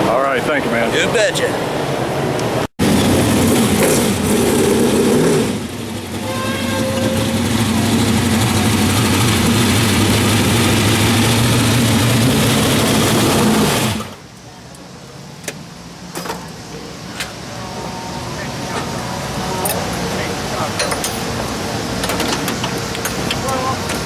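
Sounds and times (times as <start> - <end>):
racing car engine running: 2.8 - 14.2.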